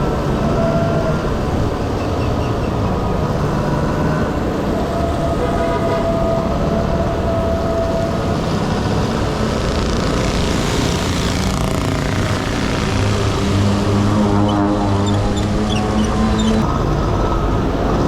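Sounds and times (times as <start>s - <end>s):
road noise: 0.0s - 18.0s
rushing wind: 0.0s - 18.0s
scooter engine buzzing: 2.9s - 16.7s.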